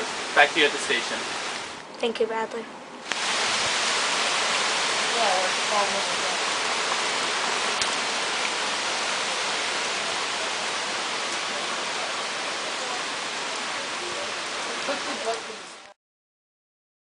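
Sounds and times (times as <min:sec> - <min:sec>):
heavy rain falling: 0:00.0 - 0:01.8, 0:03.0 - 0:16.0.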